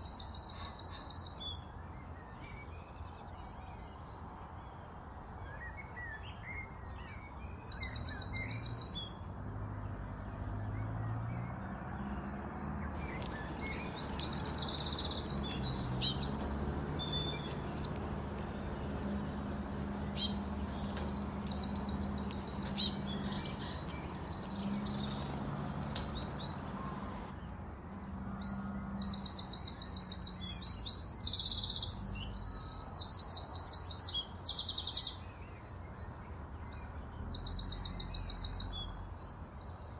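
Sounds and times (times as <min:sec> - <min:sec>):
rapid bird trills: 0:13.0 - 0:27.3
songbirds chirping: 0:13.0 - 0:27.3.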